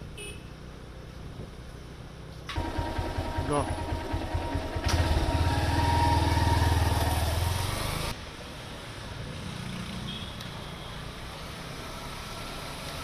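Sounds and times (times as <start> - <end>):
motorcycle engine pulsing: 2.5 - 7.4.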